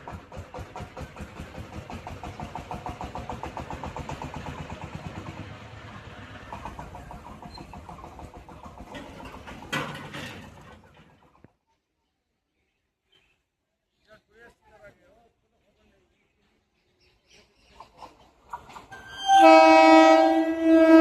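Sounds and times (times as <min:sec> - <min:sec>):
locomotive pulsing: 0:00.0 - 0:11.5, 0:17.8 - 0:21.0.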